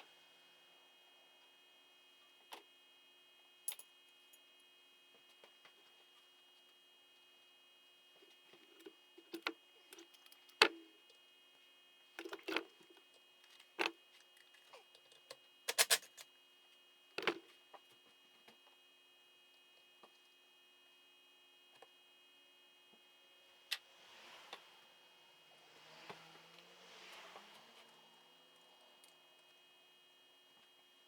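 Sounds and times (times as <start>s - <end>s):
tools and metal parts clinking: 15.7s - 16.2s.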